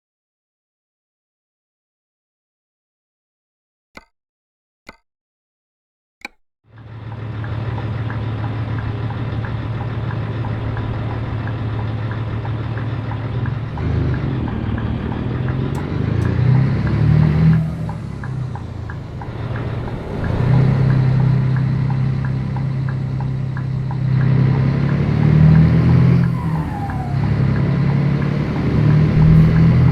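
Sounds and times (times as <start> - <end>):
diesel truck engine running: 6.7 - 29.9.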